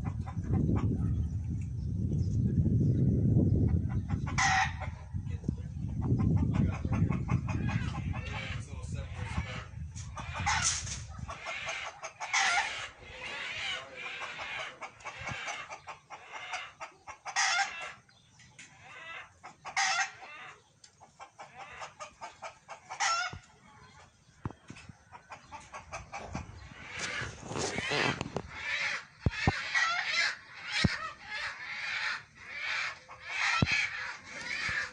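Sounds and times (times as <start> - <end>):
chickens clucking: 0.0 - 1.8, 2.6 - 34.9
roosters crowing: 4.2 - 5.1, 7.2 - 18.1, 18.7 - 20.6, 21.3 - 23.4, 25.2 - 34.9.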